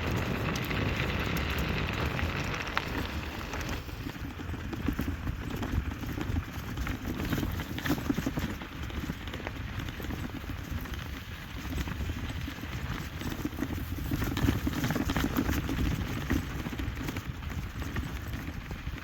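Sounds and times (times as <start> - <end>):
low rumble: 0.0 - 4.3.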